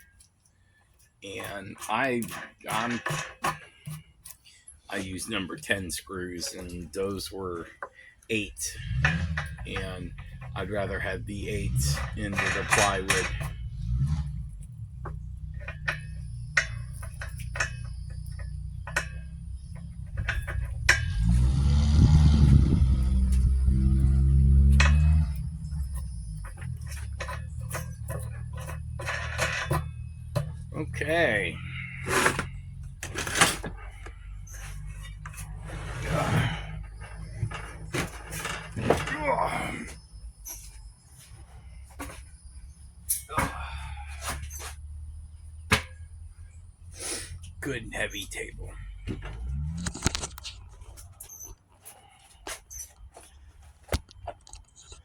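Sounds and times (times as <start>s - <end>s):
low steady hum: 0.0s - 51.2s
knocks and clicks handling table: 1.4s - 4.4s
clinks of screws and hardware: 23.2s - 30.8s.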